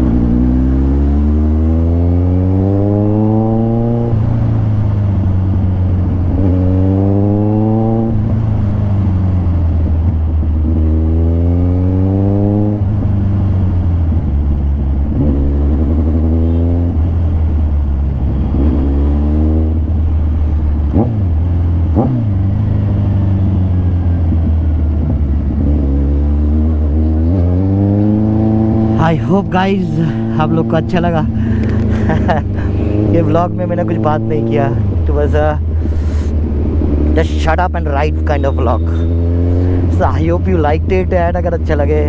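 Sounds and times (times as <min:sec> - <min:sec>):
motorcycle engine accelerating: 0:00.0 - 0:42.0
engine throttle blips: 0:12.7 - 0:42.0.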